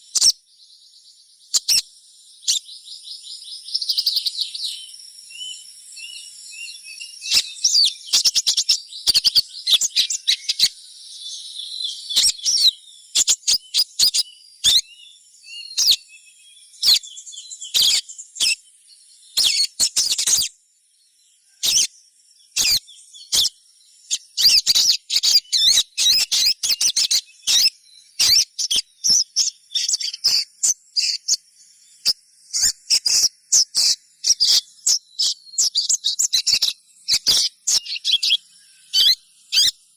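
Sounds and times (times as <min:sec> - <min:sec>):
bird sharp high chirping: 0:00.0 - 0:00.4, 0:01.5 - 0:18.7, 0:19.3 - 0:20.6, 0:21.6 - 0:21.9, 0:22.5 - 0:39.9.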